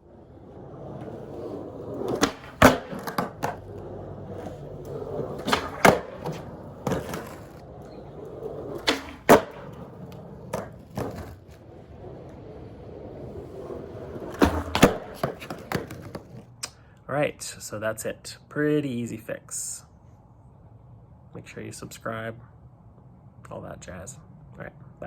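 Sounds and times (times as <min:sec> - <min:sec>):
skateboard wheels rumbling: 0:00.0 - 0:16.6
skateboard clacks: 0:00.1 - 0:16.5.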